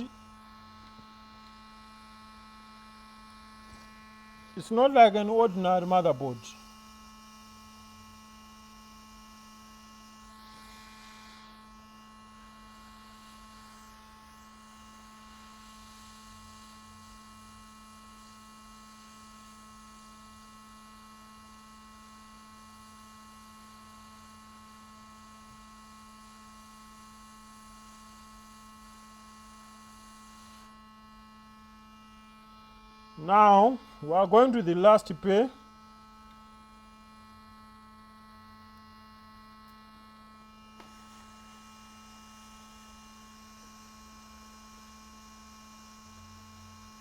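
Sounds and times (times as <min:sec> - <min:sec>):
faint electrical hum: 0:00.0 - 0:06.9, 0:31.8 - 0:36.7.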